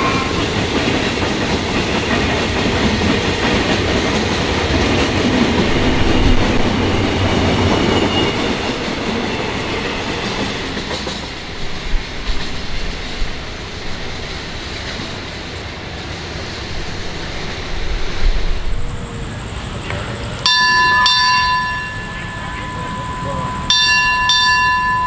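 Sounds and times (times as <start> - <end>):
train rolling and clattering: 0.0 - 25.0
bell-like signal tone: 20.4 - 25.0.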